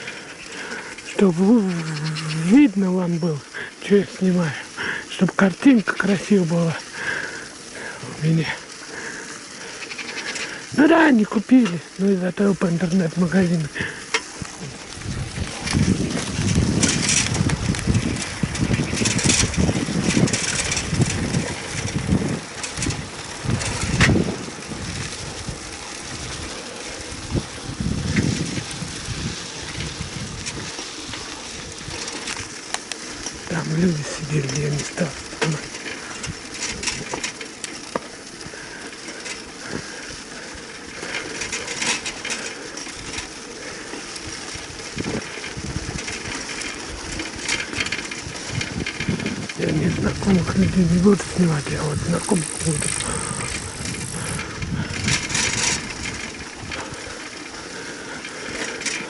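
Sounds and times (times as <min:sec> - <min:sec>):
vehicle rumble: 0:00.0 - 0:59.0
wind buffeting microphone: 0:13.2 - 0:58.8.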